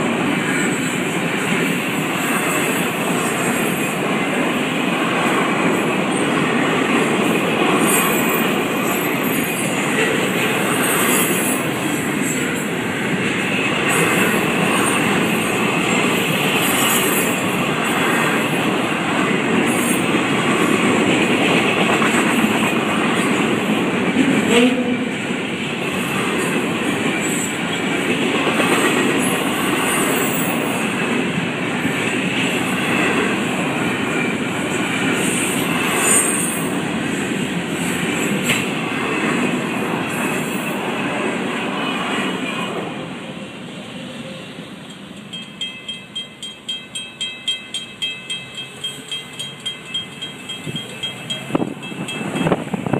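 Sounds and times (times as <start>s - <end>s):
train clanking: 0.0s - 42.8s, 44.2s - 52.9s
freight train wheels rumbling: 0.0s - 52.9s
crossing warning bell ringing: 7.2s - 18.8s, 44.7s - 52.9s.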